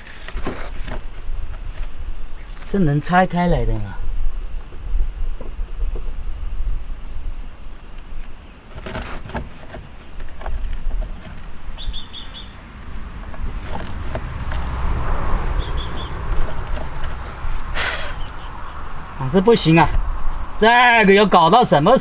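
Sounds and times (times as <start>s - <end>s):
crickets trilling: 0.0s - 22.0s
wind rumble on microphone: 1.0s - 8.4s, 10.2s - 22.0s.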